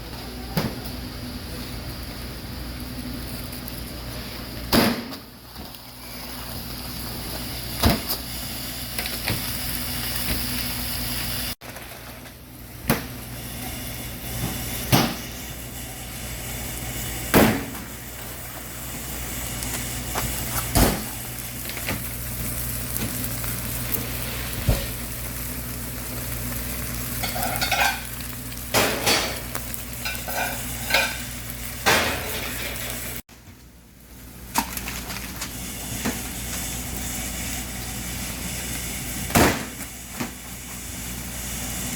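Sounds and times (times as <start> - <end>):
chicken sizzling: 1.4 - 33.2, 33.9 - 41.9
metal pans and utensils clattering: 27.2 - 33.2.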